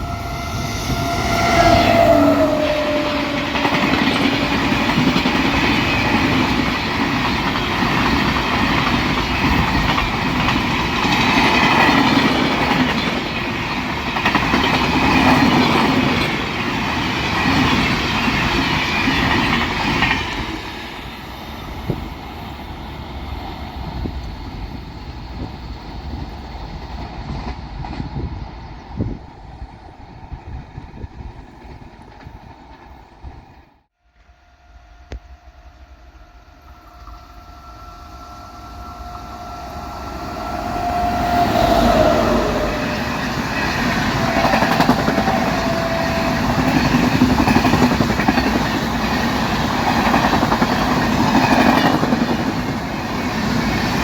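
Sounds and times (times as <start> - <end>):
train rumble: 0.0 - 54.0.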